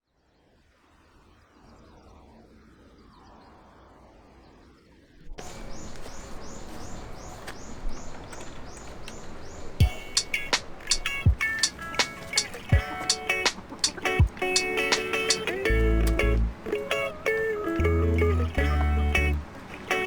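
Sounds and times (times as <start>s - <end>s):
bird calls: 5.4s - 20.0s.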